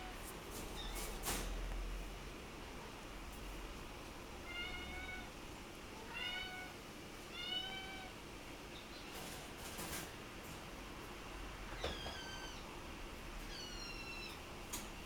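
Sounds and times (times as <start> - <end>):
kitten meowing: 13.4 - 14.4.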